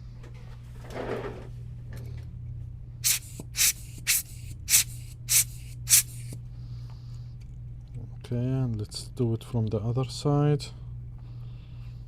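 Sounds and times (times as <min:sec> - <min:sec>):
steady low hum: 0:00.0 - 0:12.0
spray bottle hissing: 0:03.0 - 0:06.4.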